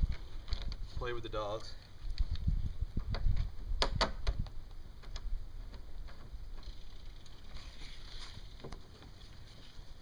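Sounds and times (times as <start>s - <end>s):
clicks and knocks of boat hardware: 3.0s - 6.7s.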